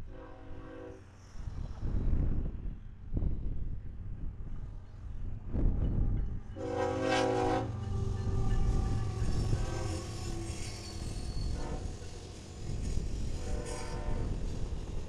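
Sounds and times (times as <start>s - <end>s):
locomotive air horn blast: 0.0s - 1.0s, 6.6s - 10.8s, 11.4s - 12.2s, 13.3s - 14.5s
freight train rumbling past: 0.0s - 15.0s.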